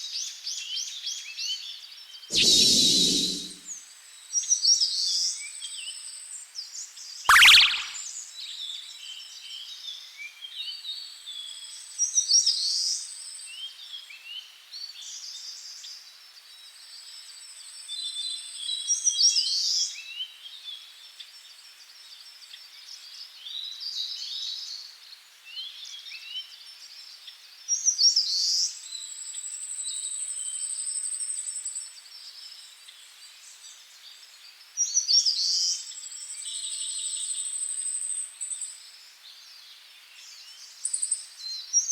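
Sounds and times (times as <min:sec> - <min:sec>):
bird high thin trill: 0:02.3 - 0:03.6, 0:07.3 - 0:08.0.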